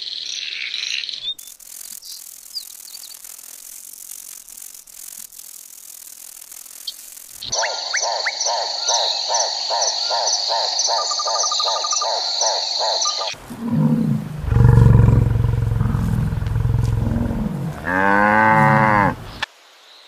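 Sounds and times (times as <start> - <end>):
rhythmic chirping: 5.6 - 13.4, 14.1 - 17.9
steady high whine: 7.4 - 17.9
bison grunting and bellowing: 8.6 - 19.4.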